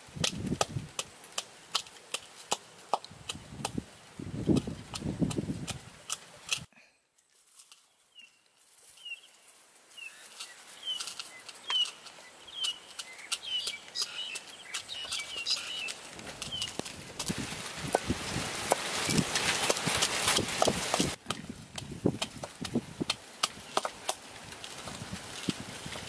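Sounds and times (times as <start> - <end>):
bird chirping: 7.7 - 16.9
pestle pounding in mortar: 17.9 - 24.0.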